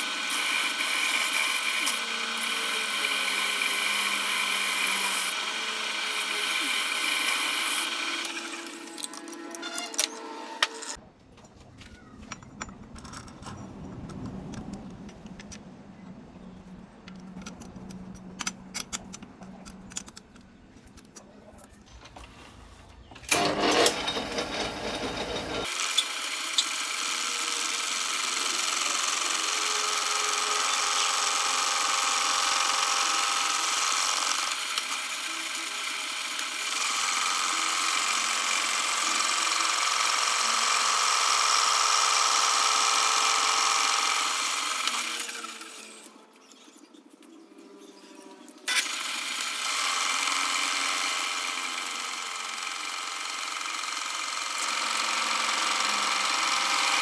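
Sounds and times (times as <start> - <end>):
power tool high-pitched whine: 0.0 - 11.0, 23.3 - 46.2, 47.8 - 57.0.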